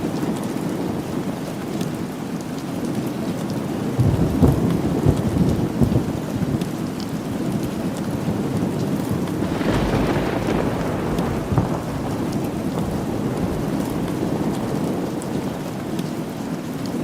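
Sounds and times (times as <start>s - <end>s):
steady rain falling: 0.0s - 17.0s
thunder rumbling: 4.0s - 6.8s, 8.3s - 16.6s.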